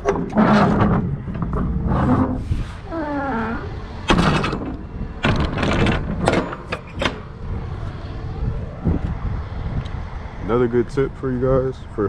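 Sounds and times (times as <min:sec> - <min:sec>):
metal doors clanking and rattling: 0:00.0 - 0:02.4, 0:03.0 - 0:07.4
metal door creaking: 0:00.0 - 0:07.3.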